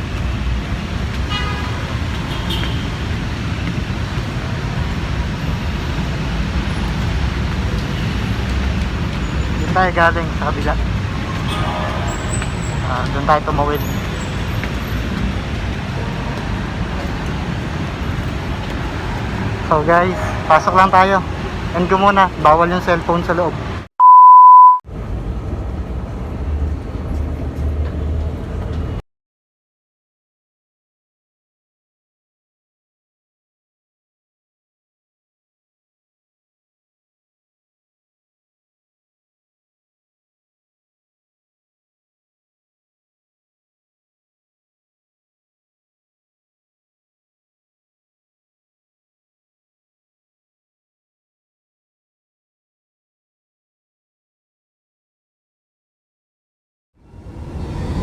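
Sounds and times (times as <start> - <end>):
road traffic rumble: 0.0 - 23.9, 24.9 - 29.0
brief high-pitched tone: 24.0 - 24.8
high-pitched beep: 24.0 - 24.8
low rumbling train: 24.9 - 29.0, 57.0 - 58.0.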